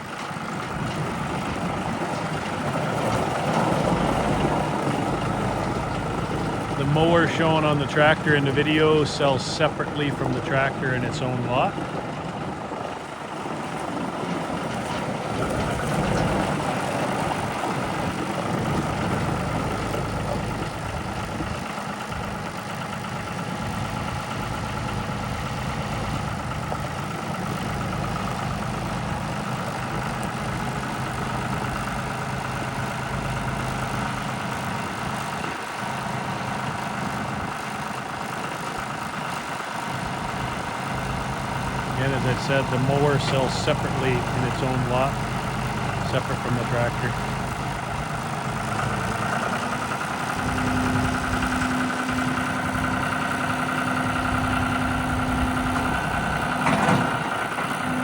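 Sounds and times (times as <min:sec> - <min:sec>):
tractor diesel engine idling: 0:00.0 - 0:58.0.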